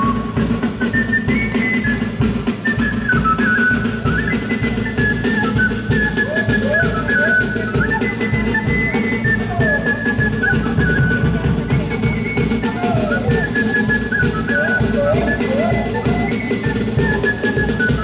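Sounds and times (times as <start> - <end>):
drums and percussion: 0.0 - 18.0.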